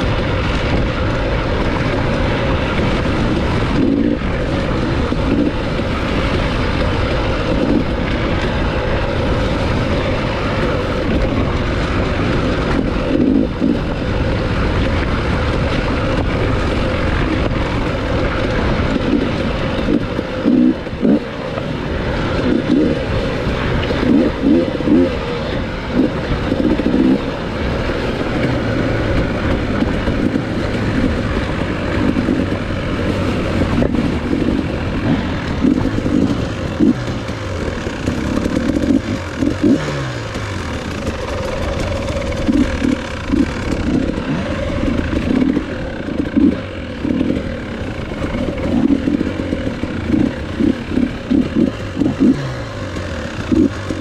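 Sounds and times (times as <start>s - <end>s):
dirt bike engine revving: 0.0s - 54.0s
rattling and clatter: 0.0s - 54.0s.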